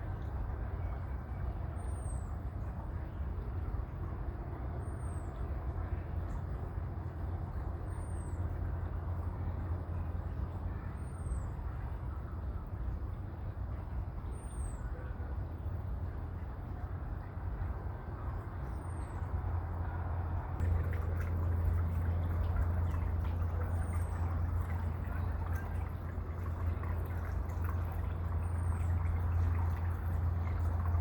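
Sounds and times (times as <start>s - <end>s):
low outdoor rumble: 0.0s - 31.0s.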